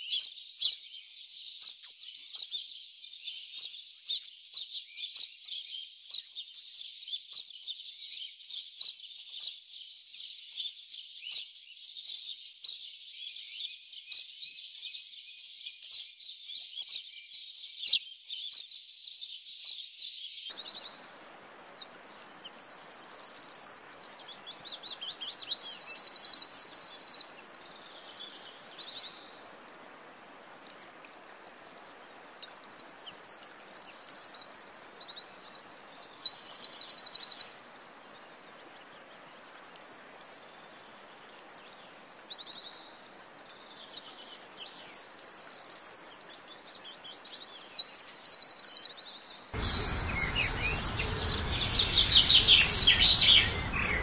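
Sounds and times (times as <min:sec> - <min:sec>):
steady hiss: 0:20.5 - 0:34.3, 0:49.6 - 0:54.0
bird singing chirps and trills: 0:20.5 - 0:54.0
louder fuller noise: 0:49.6 - 0:54.0.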